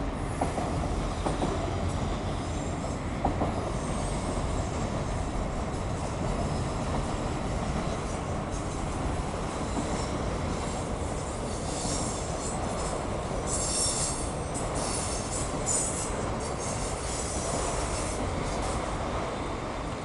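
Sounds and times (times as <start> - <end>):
high-pitched wheel squeals: 13.5 - 16.9.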